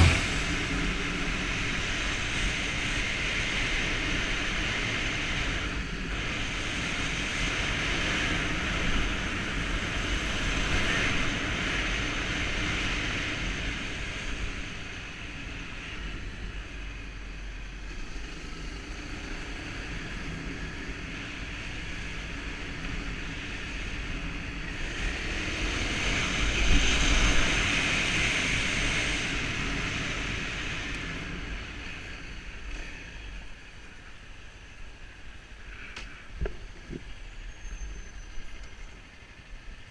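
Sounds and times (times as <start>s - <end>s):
motorbike engine: 0.0s - 5.0s
wind noise: 0.0s - 17.1s, 19.5s - 33.7s.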